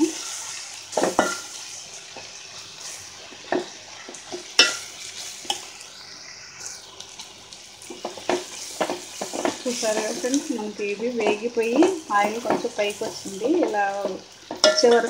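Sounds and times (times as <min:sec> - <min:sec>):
vegetables sizzling in oil: 0:00.0 - 0:15.0
spoon scraping and knocking pot: 0:01.0 - 0:01.6, 0:07.9 - 0:10.3, 0:11.2 - 0:12.7, 0:14.0 - 0:15.0.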